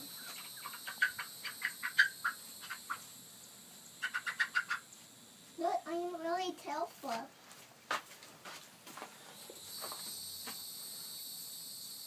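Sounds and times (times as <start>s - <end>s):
chicken clucking: 0.0s - 3.1s, 4.0s - 5.0s.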